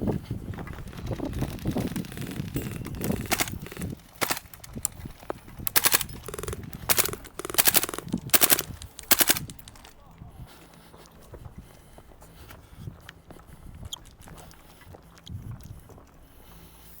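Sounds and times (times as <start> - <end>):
airsoft rifle full-auto bursts: 0.8 - 5.0, 5.7 - 9.9.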